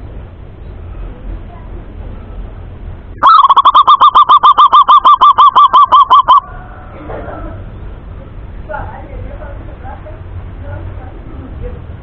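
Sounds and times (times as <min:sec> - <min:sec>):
dove calling rapid notes: 0:03.2 - 0:06.5.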